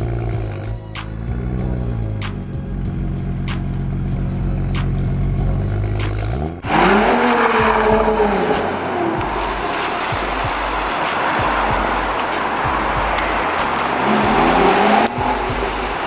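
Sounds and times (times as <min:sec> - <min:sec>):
engine revving: 0:00.0 - 0:16.0
car engine idling: 0:06.6 - 0:16.0.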